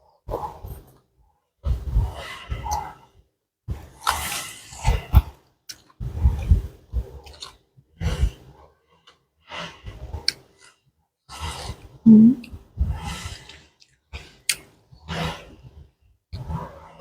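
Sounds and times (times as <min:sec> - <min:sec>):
person breathing: 0:12.1 - 0:12.5.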